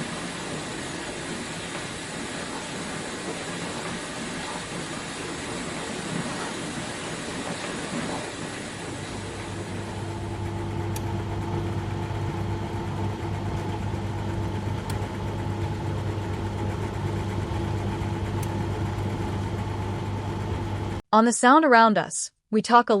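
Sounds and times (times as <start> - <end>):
spraying water hiss: 0.0 - 9.9
dishwasher motor hum: 0.0 - 21.0.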